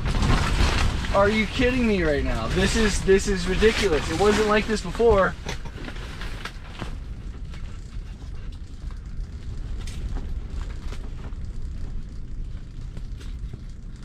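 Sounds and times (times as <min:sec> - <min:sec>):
shelter fabric snapping and creaking: 0:00.0 - 0:07.8.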